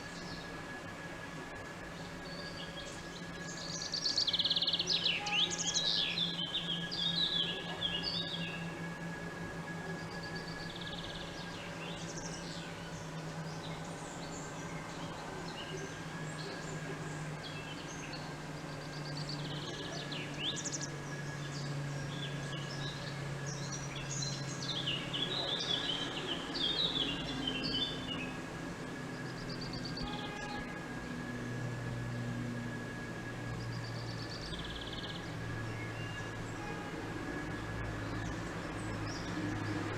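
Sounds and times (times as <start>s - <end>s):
small birds chirping: 1.9s - 8.8s, 10.0s - 28.6s, 32.8s - 36.8s.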